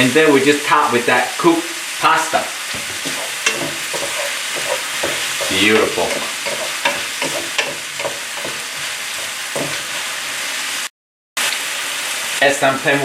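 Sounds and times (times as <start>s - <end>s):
food sizzling in a hot pan: 0.0s - 13.0s
utensil scraping and knocking pan: 2.7s - 10.1s.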